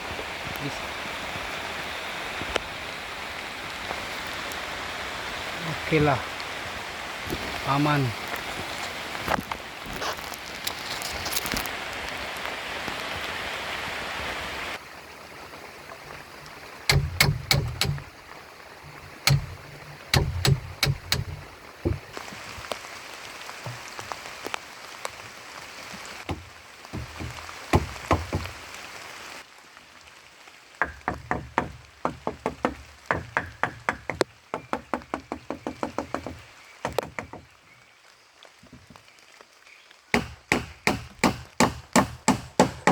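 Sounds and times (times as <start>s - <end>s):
steady rain: 0.0s - 42.9s
sharp knocks: 16.9s - 18.1s, 18.9s - 22.1s, 27.0s - 28.5s, 30.8s - 37.5s, 40.2s - 42.9s.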